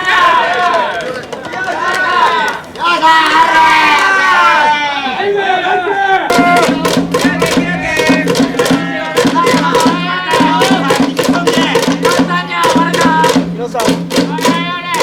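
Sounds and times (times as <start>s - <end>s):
voices singing or chanting: 1.6s - 15.0s.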